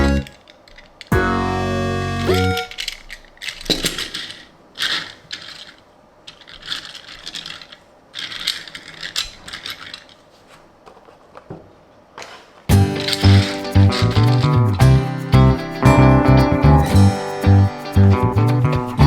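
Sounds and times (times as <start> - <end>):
toy car and packaging handled: 0.3 - 1.1, 2.3 - 11.5.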